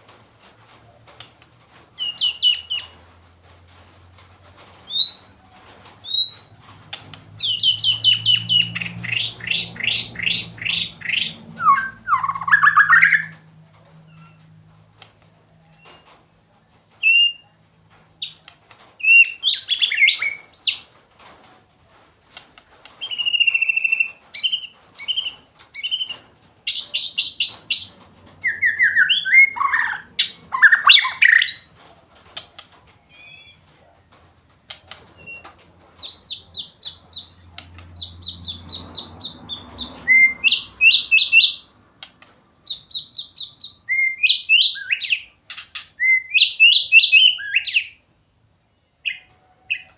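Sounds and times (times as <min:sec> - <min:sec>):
songbird whistling and trilling: 0:02.0 - 0:02.9, 0:04.9 - 0:05.4, 0:06.0 - 0:06.5, 0:07.4 - 0:13.3, 0:23.0 - 0:31.6, 0:35.2 - 0:37.4, 0:38.0 - 0:41.6, 0:42.7 - 0:48.0.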